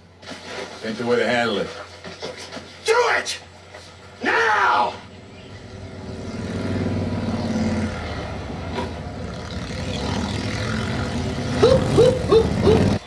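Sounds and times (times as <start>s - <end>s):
vehicle engine low rumble: 5.1s - 13.0s.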